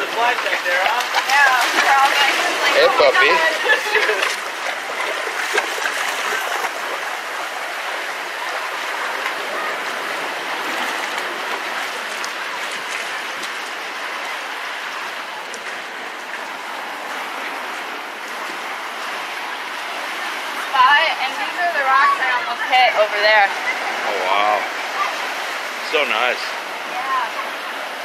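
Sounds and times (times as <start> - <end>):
faint water ticks: 0.0 - 2.6, 15.4 - 19.8
seawater washing over rocks: 0.0 - 28.0.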